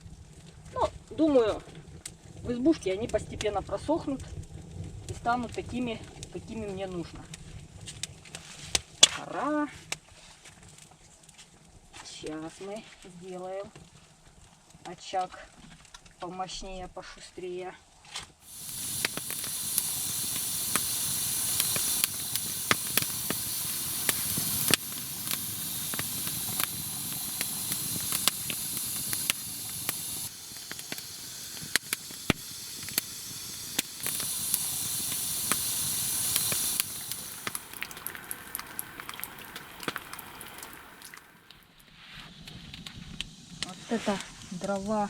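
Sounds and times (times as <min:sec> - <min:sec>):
firewood crackling and popping: 0:00.0 - 0:12.2, 0:13.7 - 0:14.9, 0:15.5 - 0:16.2, 0:18.1 - 0:44.7
hiss of flames: 0:18.4 - 0:45.0.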